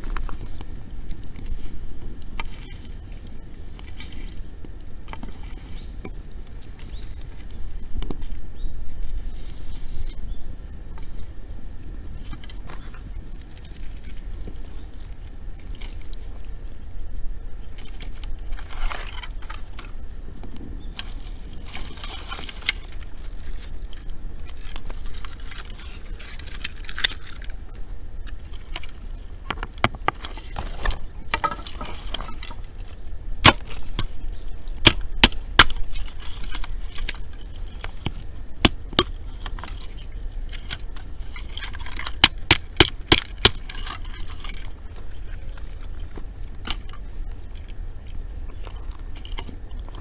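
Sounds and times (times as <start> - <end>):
campfire crackling and popping: 22.4 - 41.4.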